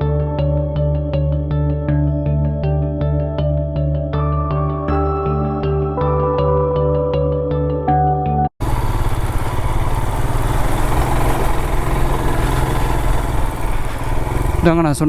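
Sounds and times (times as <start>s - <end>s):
motorcycle engine running: 8.6s - 15.0s.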